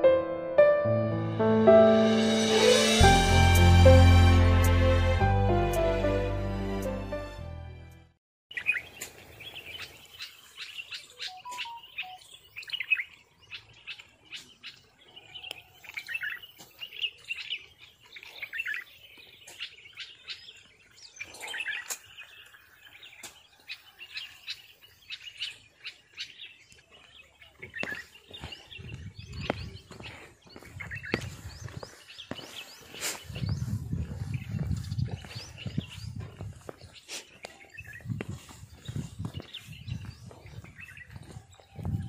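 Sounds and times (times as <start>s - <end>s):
background music: 0.0s - 8.2s
small birds chirping: 8.5s - 42.0s.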